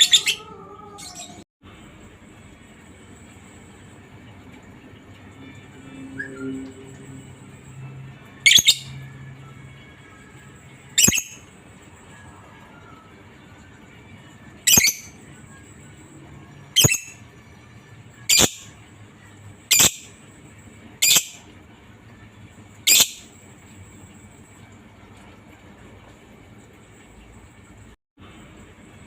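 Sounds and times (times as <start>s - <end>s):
lovebird shrill calls: 11.0s - 11.4s, 16.8s - 17.1s, 18.3s - 18.7s, 19.7s - 20.1s, 21.0s - 21.4s, 22.9s - 23.2s.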